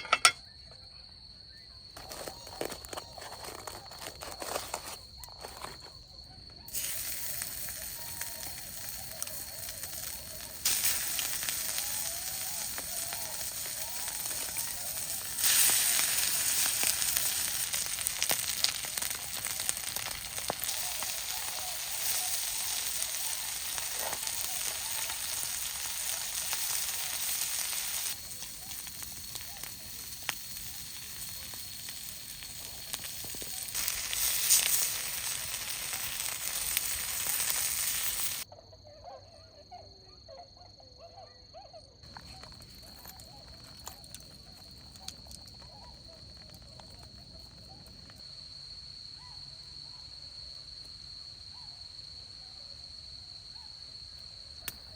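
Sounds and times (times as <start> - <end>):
food sizzling in a pan: 6.6 - 38.5.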